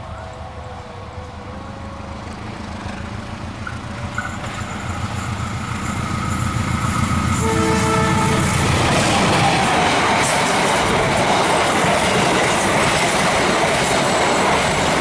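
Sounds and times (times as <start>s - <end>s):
diesel locomotive engine and wheels: 0.0s - 15.0s
locomotive horn: 7.4s - 8.7s.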